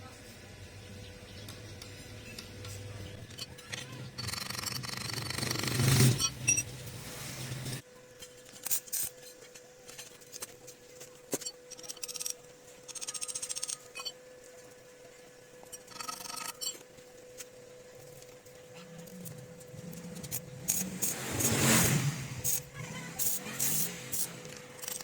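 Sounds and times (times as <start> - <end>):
rapid ratcheting clicks: 3.2 - 6.4, 11.3 - 14.2, 15.7 - 16.8, 18.0 - 21.8, 22.4 - 25.0.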